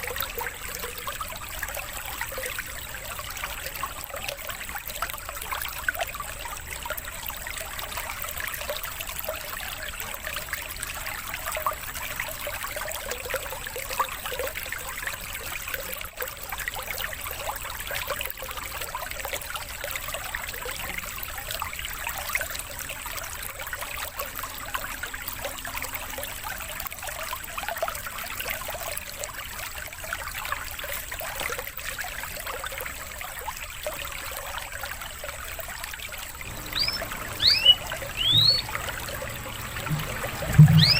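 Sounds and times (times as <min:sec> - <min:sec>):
water trickling: 0:00.0 - 0:40.9
faint steady high tone: 0:36.4 - 0:40.9.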